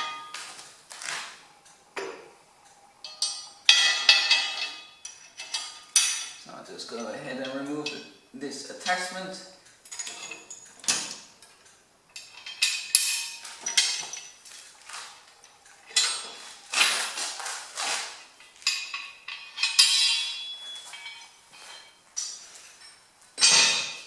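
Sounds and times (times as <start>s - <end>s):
metal pins clanking and scraping: 3.0s - 8.1s, 9.8s - 24.0s.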